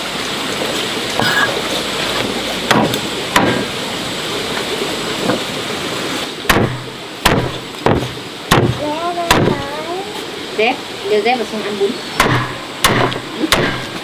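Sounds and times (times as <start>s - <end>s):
rain hissing: 0.0s - 14.0s
hard object knocks: 2.7s - 3.6s, 6.5s - 9.6s.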